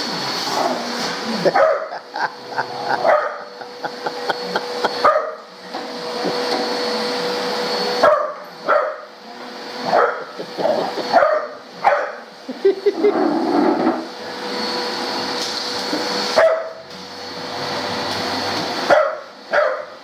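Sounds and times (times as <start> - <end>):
vacuum cleaner running: 0.0 - 20.0
dog barking: 1.5 - 2.0, 2.9 - 3.5, 5.0 - 5.4, 8.0 - 9.1, 9.8 - 12.2, 16.4 - 16.8, 18.9 - 20.0.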